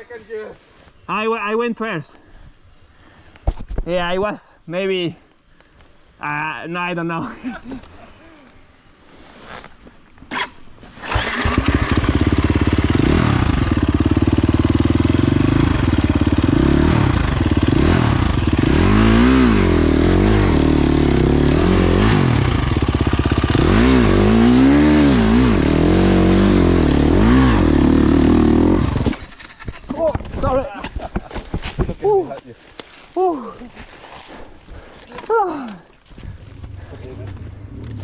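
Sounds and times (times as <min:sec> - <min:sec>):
dirt bike engine revving: 0:10.3 - 0:29.8.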